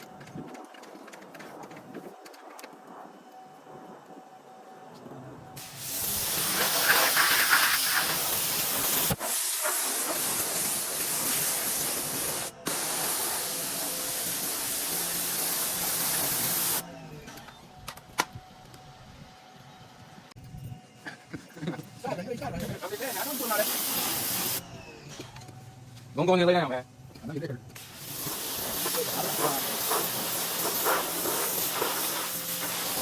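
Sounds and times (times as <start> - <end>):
pressure washer spraying water: 5.6 - 16.8, 22.8 - 24.6, 27.8 - 33.0.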